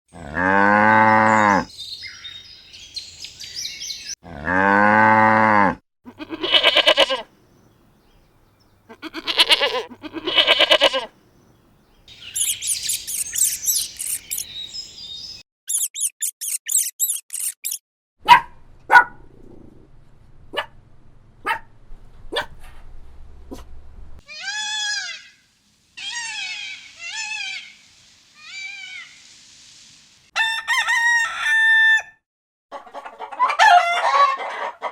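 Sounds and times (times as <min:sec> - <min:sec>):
cow mooing: 0:00.1 - 0:01.7, 0:04.2 - 0:07.2
high chirping calls: 0:01.7 - 0:04.2, 0:11.4 - 0:17.8
goats bleating: 0:06.1 - 0:07.3, 0:08.9 - 0:11.1
short falling animal calls: 0:24.3 - 0:27.8.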